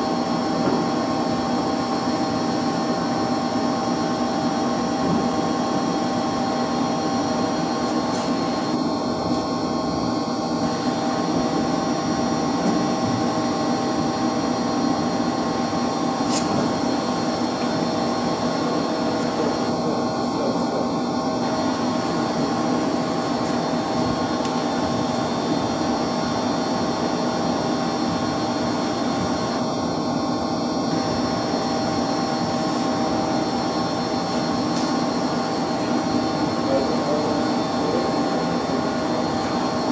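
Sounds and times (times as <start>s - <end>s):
circulation pump humming: 0.0s - 39.9s.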